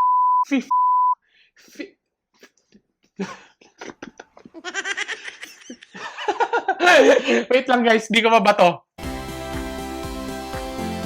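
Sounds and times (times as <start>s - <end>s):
high bleep tone: 0.0s - 1.2s.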